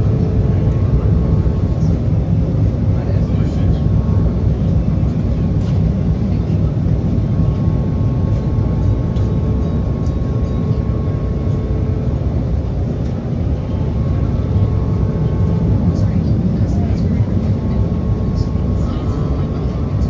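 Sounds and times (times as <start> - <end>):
trolley rumble: 0.0 - 20.0.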